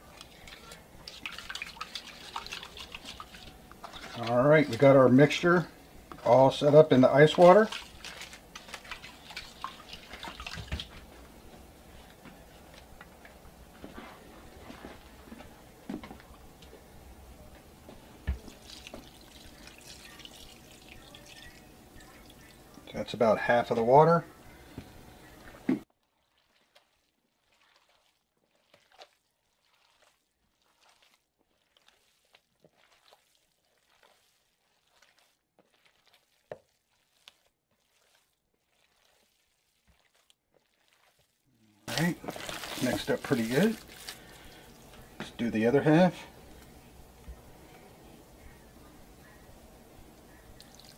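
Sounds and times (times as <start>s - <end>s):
water pouring and splashing: 0.0s - 5.6s, 6.3s - 11.1s, 18.3s - 23.0s, 26.0s - 45.0s, 50.6s - 50.9s
hands kneading wet meat: 0.0s - 13.3s, 17.9s - 24.7s, 25.8s - 47.5s.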